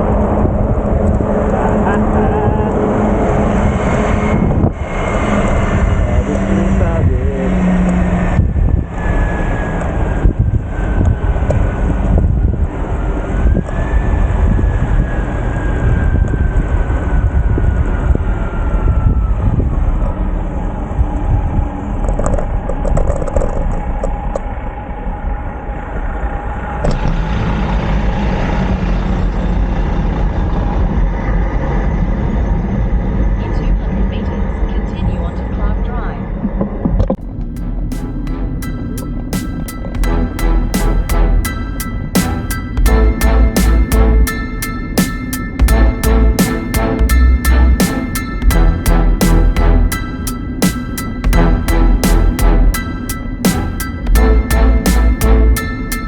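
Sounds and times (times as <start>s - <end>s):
thin falling tone: 37.4s - 56.0s.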